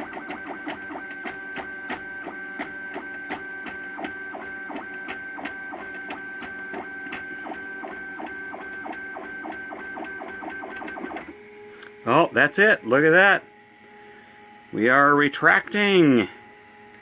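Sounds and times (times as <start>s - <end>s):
stepper motors whining: 0.0s - 11.4s.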